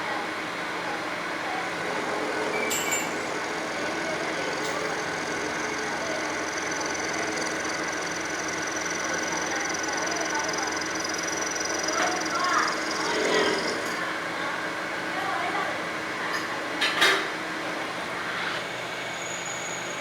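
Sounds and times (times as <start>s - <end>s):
factory machinery humming: 0.0s - 16.1s
high metallic ring: 2.5s - 3.3s.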